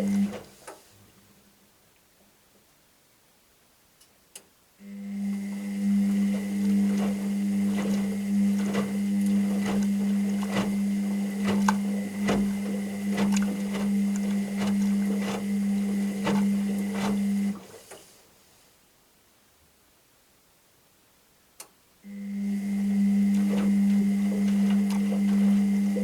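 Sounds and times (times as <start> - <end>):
washing machine motor hum: 0.0 - 0.5, 4.8 - 18.0, 22.1 - 26.0
washing machine drum clunking: 6.0 - 17.7, 23.2 - 26.0.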